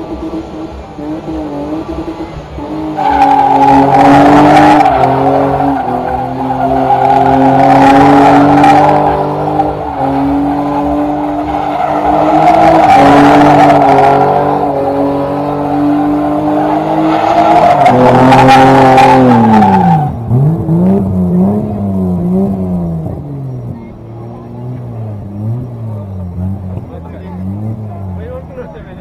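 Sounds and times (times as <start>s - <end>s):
car engine at high revs: 0.0s - 29.0s.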